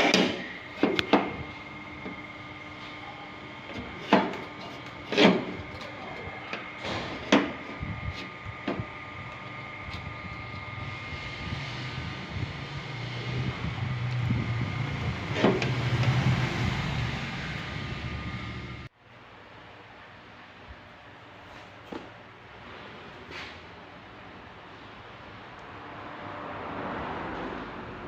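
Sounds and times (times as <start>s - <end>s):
low hum: 0.0s - 18.9s.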